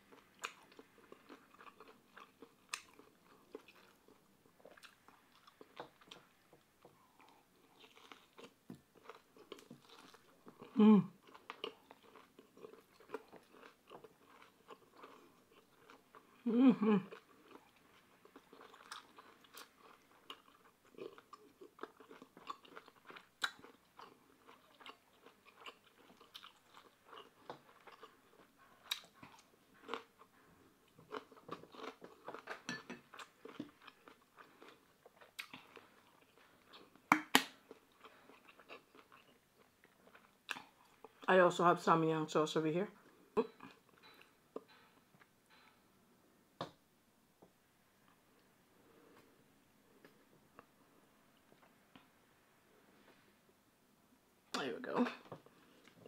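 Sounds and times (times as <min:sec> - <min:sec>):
chewing and crunching food: 0:00.0 - 0:41.4, 0:42.9 - 0:45.9, 0:55.1 - 0:56.0.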